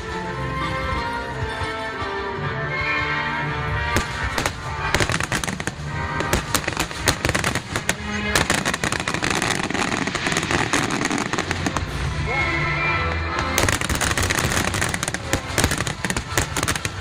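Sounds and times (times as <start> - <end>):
music playing: 0.0 - 17.0
fireworks bursting: 3.9 - 12.3, 13.0 - 17.0.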